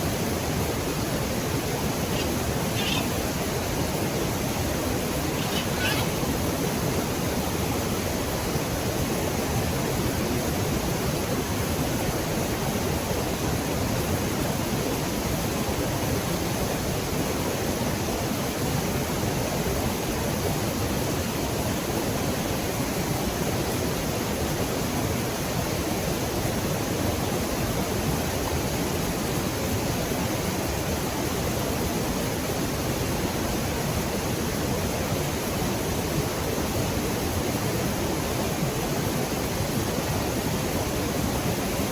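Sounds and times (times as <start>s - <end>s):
river water rushing: 0.0s - 9.3s.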